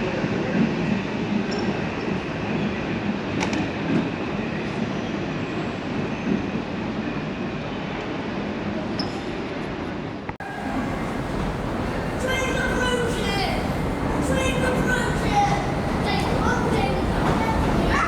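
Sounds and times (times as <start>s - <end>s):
train rail rumble: 10.4s - 18.0s.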